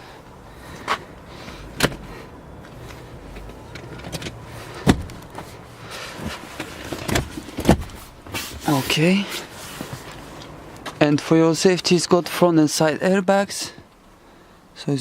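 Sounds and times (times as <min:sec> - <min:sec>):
car seat fittings clicking: 0:00.8 - 0:05.5, 0:06.2 - 0:08.5.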